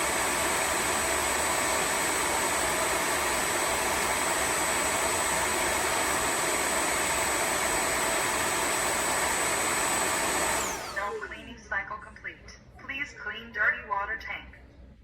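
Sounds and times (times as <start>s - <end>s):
vacuum motor running with whine: 0.0s - 11.4s.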